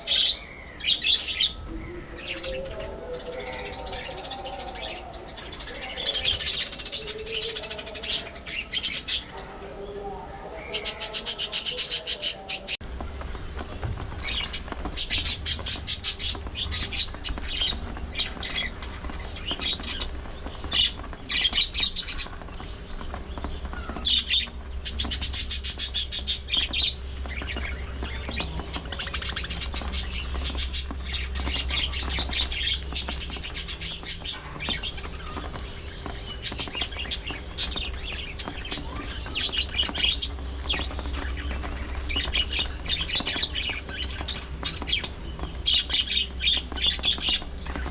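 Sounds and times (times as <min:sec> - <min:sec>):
budgerigars chirping and squawking: 0:00.0 - 0:09.4, 0:10.5 - 0:47.9
low hum: 0:12.8 - 0:47.9.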